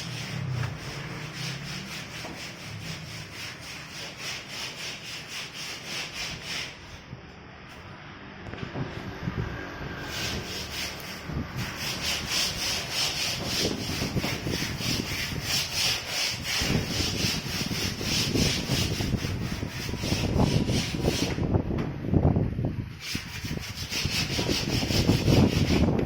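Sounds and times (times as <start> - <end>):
hand tool scraping hard surface: 0.0 - 7.0, 10.0 - 21.4.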